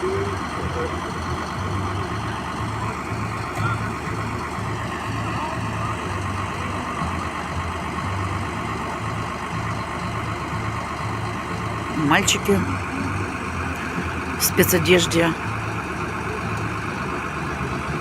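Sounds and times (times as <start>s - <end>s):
diesel engine idling: 0.0s - 18.0s
faint voices: 0.0s - 18.0s.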